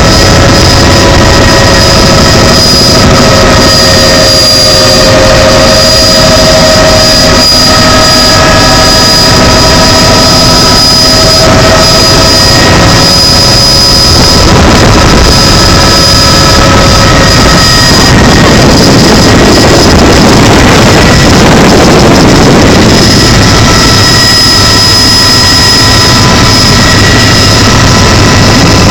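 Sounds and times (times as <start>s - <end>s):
helicopter engine and rotor roar: 0.0s - 28.9s
high whine: 0.0s - 28.9s.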